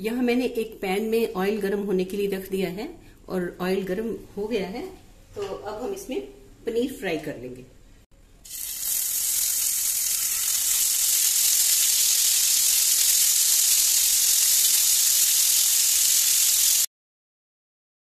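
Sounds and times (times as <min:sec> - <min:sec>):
cheese cubes sizzling in hot oil: 0:08.4 - 0:16.9.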